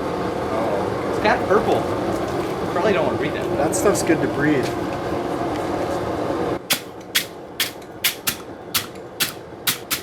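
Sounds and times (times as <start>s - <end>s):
hammer striking steel: 6.6s - 10.0s.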